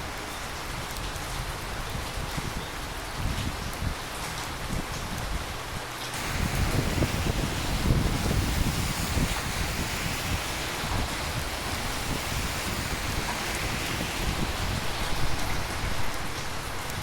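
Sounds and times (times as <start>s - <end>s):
rain hiss: 0.0s - 17.0s.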